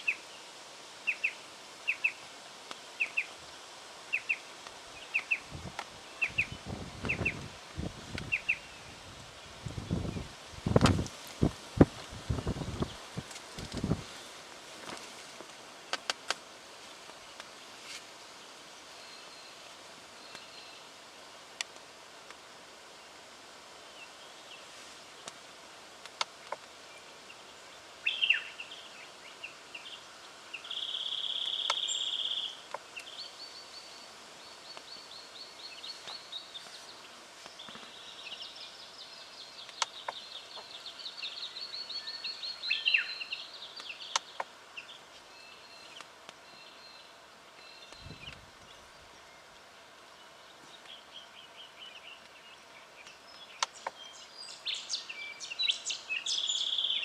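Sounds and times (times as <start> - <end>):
faint clicks: 14.8 - 16.4, 26.0 - 26.8, 39.6 - 40.8, 53.0 - 54.0
bird calling with trills: 28.0 - 28.7.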